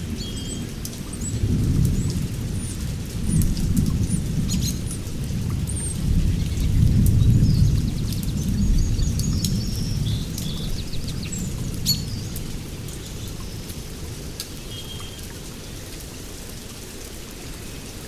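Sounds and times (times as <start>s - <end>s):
steady rain with drips: 0.0s - 18.0s
thunder rumbling: 1.2s - 12.9s.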